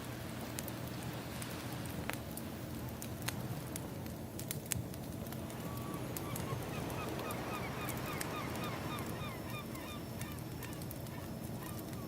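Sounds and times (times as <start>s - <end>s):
wood fire crackling: 0.0s - 12.0s
flock of birds calling: 5.6s - 12.0s.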